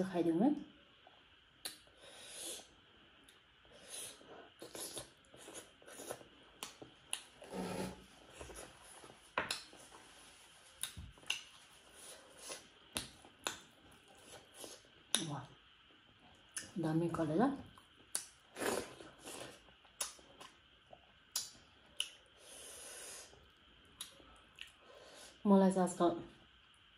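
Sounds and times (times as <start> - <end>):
chewing and mouth smacking: 24.0 - 24.8
breathing: 24.2 - 25.4.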